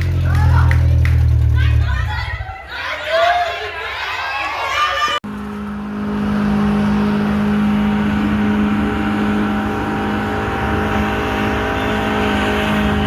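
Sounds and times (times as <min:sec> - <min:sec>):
car engine at high revs: 0:05.2 - 0:13.0.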